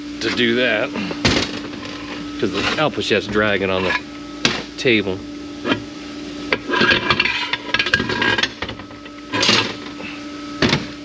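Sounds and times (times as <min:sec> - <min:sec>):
metal rubbing and scraping: 0:01.5 - 0:04.1, 0:06.5 - 0:08.6, 0:09.2 - 0:09.9
metal parts clanking: 0:06.7 - 0:09.9.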